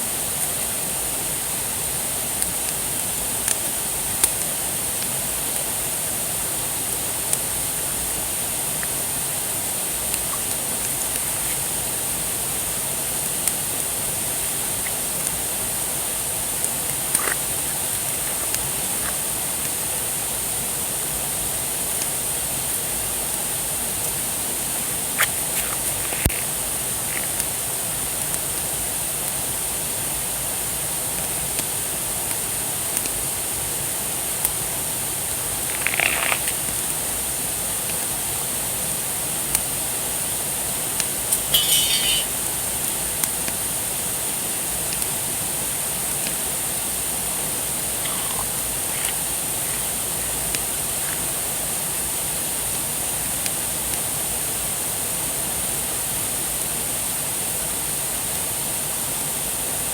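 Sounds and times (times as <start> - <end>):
fire hiss: 0.0 - 59.9
short squeaks: 41.5 - 42.3.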